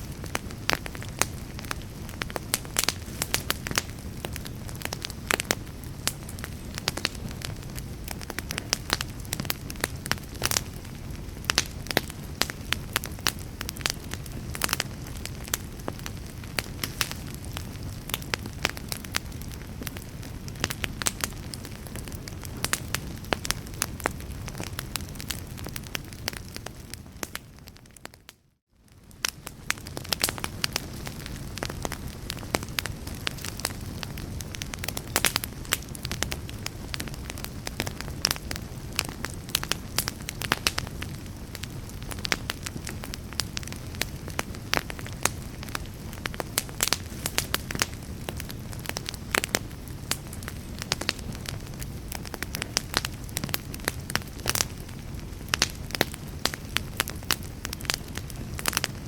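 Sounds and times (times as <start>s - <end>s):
low rumble of flame: 0.0s - 59.0s
wood fire crackling and popping: 0.0s - 59.0s.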